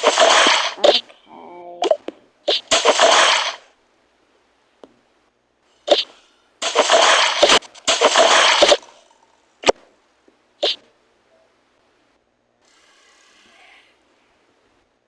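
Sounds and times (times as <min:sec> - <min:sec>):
water splashing: 0:00.0 - 0:01.1, 0:01.8 - 0:03.7, 0:05.9 - 0:08.9.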